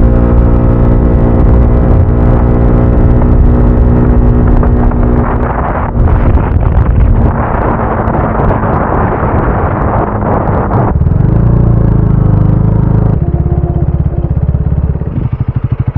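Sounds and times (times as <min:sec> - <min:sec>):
motorcycle engine: 0:00.0 - 0:15.9
wind rushing over microphone: 0:00.0 - 0:15.9
motorcycle engine idling: 0:12.6 - 0:15.9.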